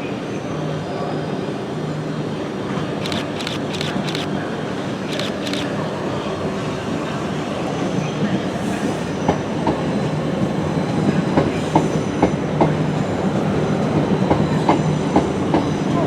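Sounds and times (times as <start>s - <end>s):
train rumbling on track: 1.8s - 4.4s, 5.0s - 5.7s, 6.4s - 16.0s.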